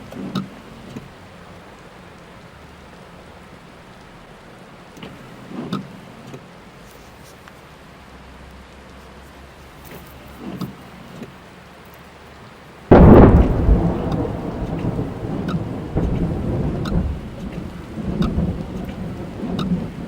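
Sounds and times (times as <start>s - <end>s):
rain pattering on car roof: 0.0s - 20.0s
thunderclap rumbling: 12.9s - 20.0s.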